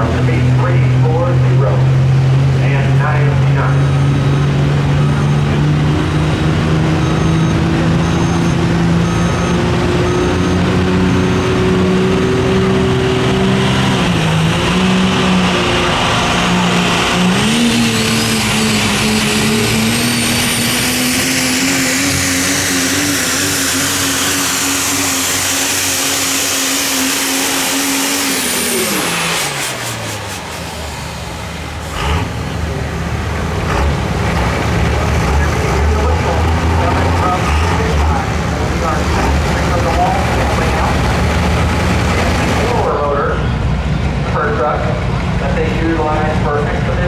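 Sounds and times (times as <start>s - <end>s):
diesel truck engine running hard: 0.0s - 47.0s
turbocharger whistle: 6.8s - 31.2s.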